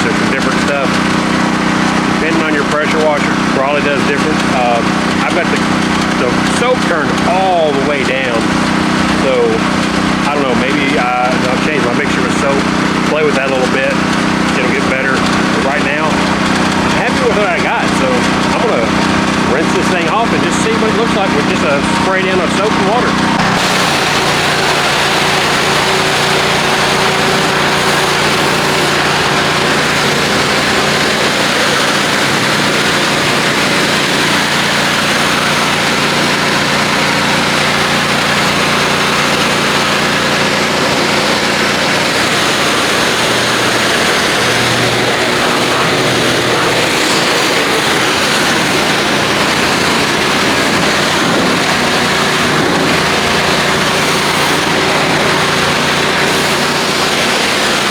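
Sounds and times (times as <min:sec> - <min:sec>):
pressure washer engine running: 0:00.0 - 0:57.9
high-pressure water spray hissing: 0:22.2 - 0:57.9.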